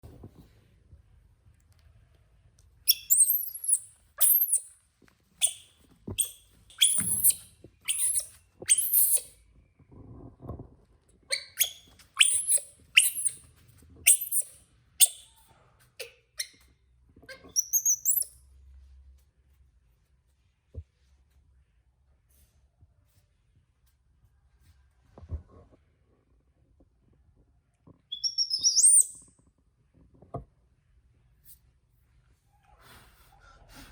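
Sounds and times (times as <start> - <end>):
baby monkey high-pitched chirps: 2.9 - 4.7, 5.4 - 9.4, 11.3 - 15.4, 17.3 - 18.4, 28.1 - 29.2.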